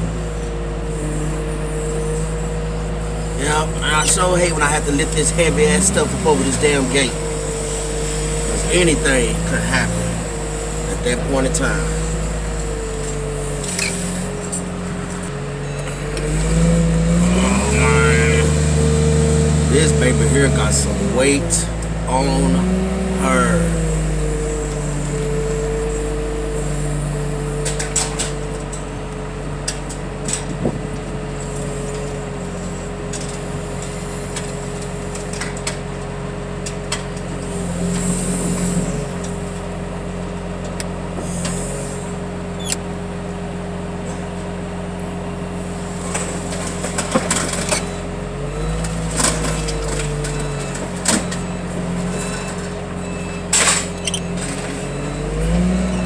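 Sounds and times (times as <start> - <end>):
lifting machine engine running: 0.0 - 56.0
metal clanks and knocks: 48.8 - 55.0.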